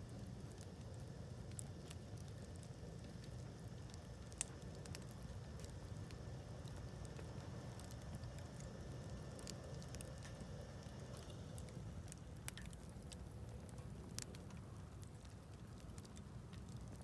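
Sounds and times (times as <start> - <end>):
campfire crackles and pops: 0.0 - 17.0
low steady rumble: 0.0 - 17.0.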